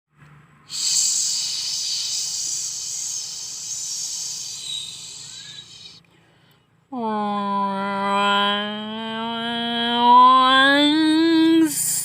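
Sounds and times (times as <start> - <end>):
steady hiss: 0.7 - 6.0.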